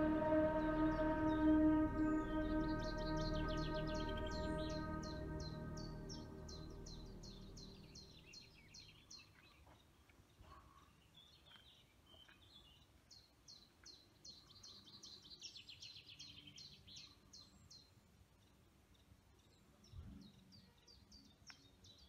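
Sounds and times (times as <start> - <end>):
faint songbird song: 0.0 - 22.0.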